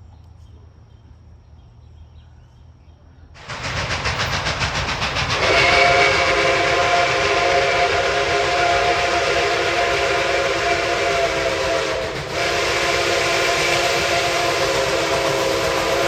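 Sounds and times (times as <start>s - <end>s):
rush of steam: 3.4s - 16.0s
steam locomotive whistle chord: 3.6s - 16.0s.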